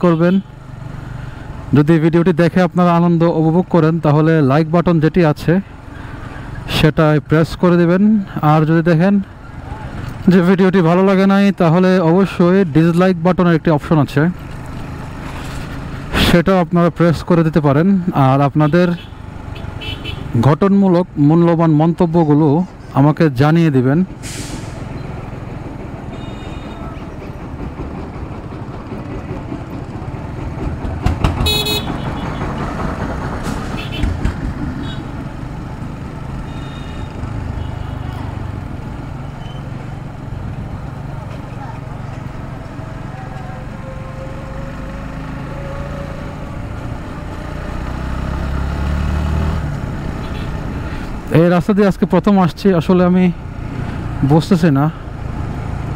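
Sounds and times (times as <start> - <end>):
road and wind noise: 0.0 - 55.9
motorcycle engine rumble: 24.0 - 55.9.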